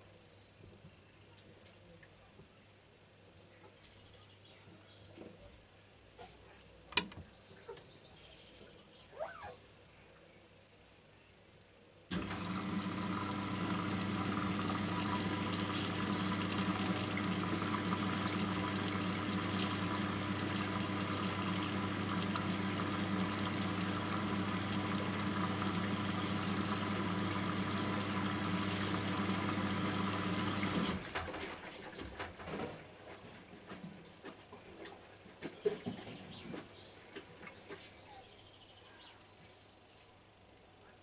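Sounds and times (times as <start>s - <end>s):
rushing water: 12.1s - 31.0s
appliance electric hum: 12.1s - 31.1s.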